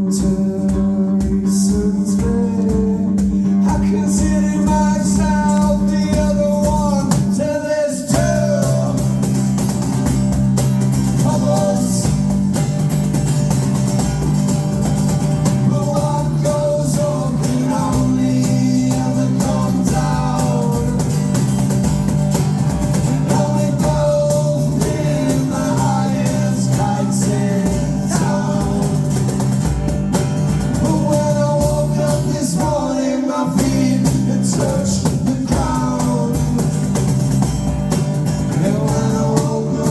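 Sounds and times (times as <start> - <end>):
person singing: 0.0 - 9.3, 15.5 - 21.3, 23.2 - 29.6, 30.7 - 37.2, 38.5 - 39.9
bass line: 0.0 - 39.9
electric guitars: 0.0 - 39.9.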